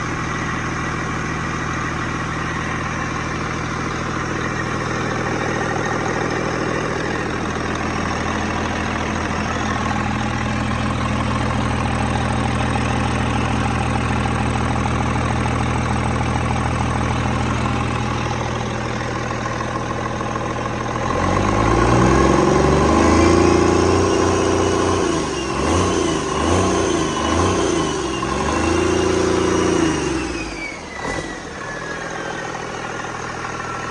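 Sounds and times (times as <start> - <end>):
diesel engine idling and revving: 0.0 - 33.9.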